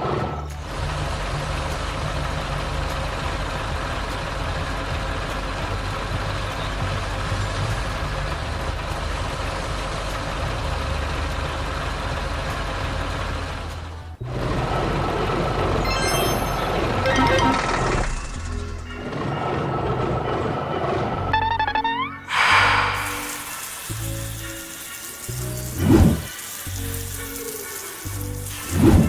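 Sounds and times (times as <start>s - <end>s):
heavy diesel engine rumbling: 0.0s - 15.9s.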